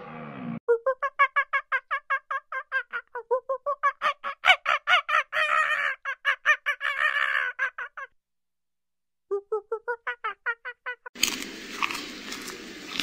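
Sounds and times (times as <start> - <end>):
monkey chattering: 0.9 - 8.1
harsh monkey calls: 0.9 - 8.2, 9.9 - 11.1.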